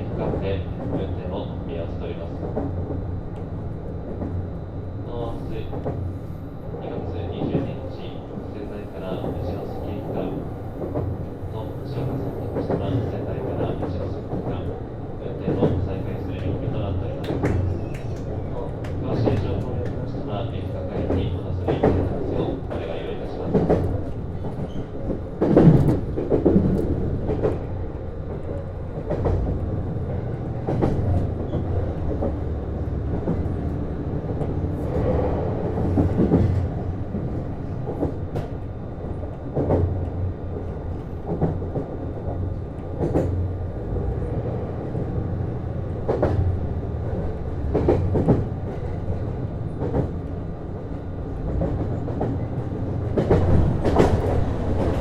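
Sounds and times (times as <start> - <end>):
railcar running rumble: 0.0 - 55.0.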